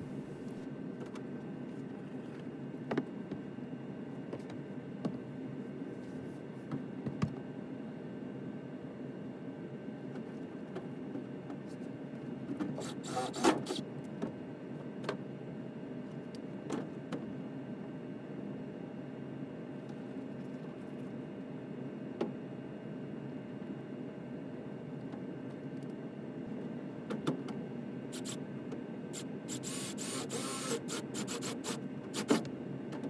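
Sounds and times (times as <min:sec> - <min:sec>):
furnace blower humming: 0:00.0 - 0:00.6, 0:27.8 - 0:33.0.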